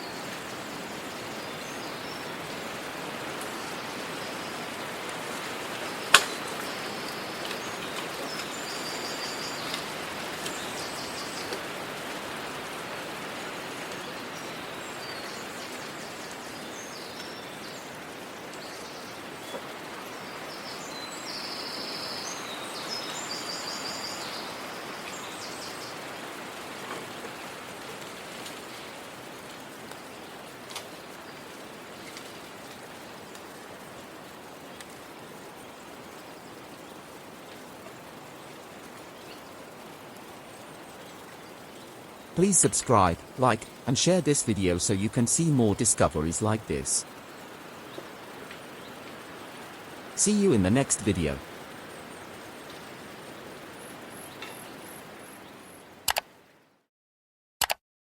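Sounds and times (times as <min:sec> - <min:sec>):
outdoor hiss: 0:00.0 - 0:56.6
small birds singing: 0:05.8 - 0:11.6, 0:14.0 - 0:26.1, 0:34.2 - 0:42.4, 0:47.2 - 0:50.2.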